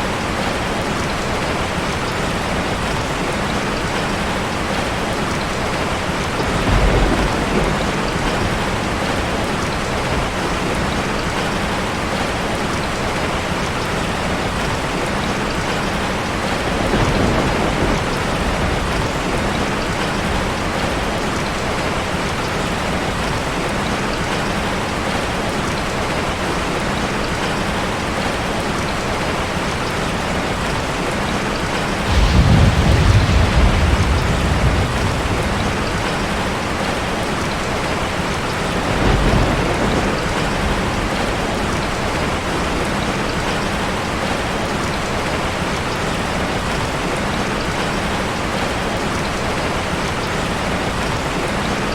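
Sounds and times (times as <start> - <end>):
heavy rain on car roof: 0.0 - 51.9
thunder rumbling: 4.6 - 12.7, 15.5 - 23.0, 31.6 - 44.3.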